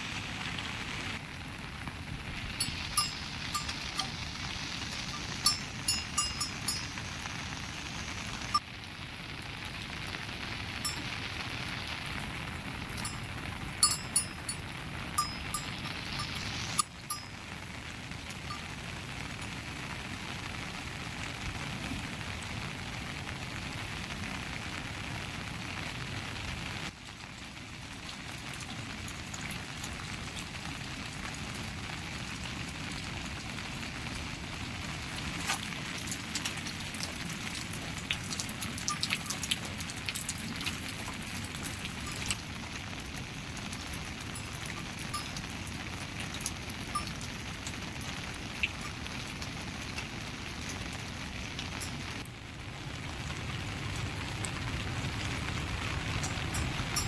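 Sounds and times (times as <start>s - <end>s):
rain falling: 0.0s - 57.0s
drips and taps close by: 4.9s - 7.0s, 13.0s - 14.6s, 38.0s - 42.4s.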